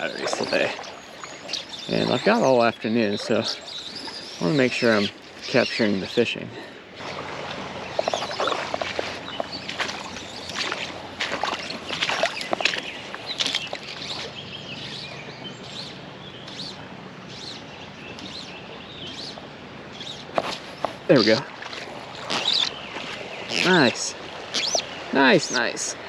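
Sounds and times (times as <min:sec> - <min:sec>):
creek water splashing: 0:00.0 - 0:26.0
high bird chirps: 0:22.3 - 0:22.8, 0:23.4 - 0:25.0.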